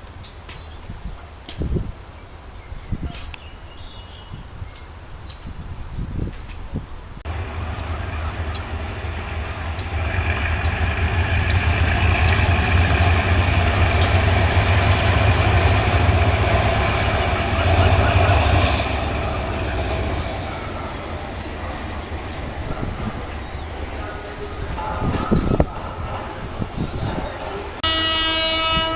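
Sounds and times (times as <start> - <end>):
diesel train engine rumbling: 7.2 - 28.9.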